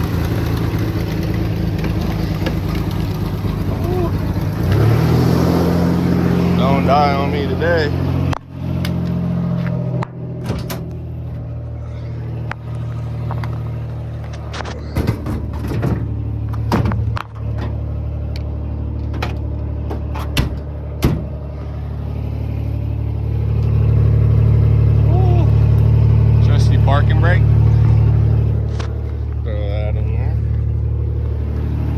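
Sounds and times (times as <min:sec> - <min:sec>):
truck engine running: 0:00.0 - 0:31.9
truck body knocks and rattles: 0:09.6 - 0:17.9, 0:18.9 - 0:21.5.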